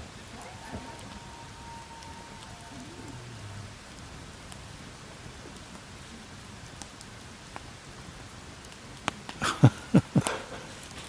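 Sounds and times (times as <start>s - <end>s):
rain pattering: 0.0s - 11.0s.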